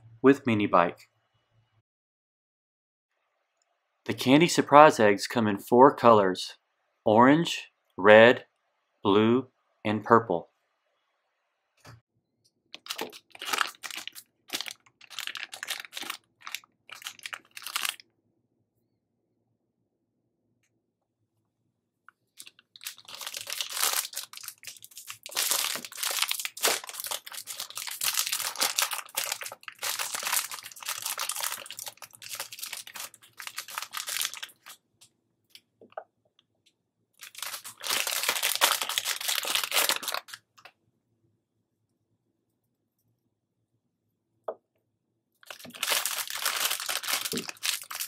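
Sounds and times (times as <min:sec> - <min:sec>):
wrappers crinkling and tearing: 0:12.8 - 0:18.0, 0:22.4 - 0:34.8, 0:37.2 - 0:40.5, 0:45.4 - 0:48.0.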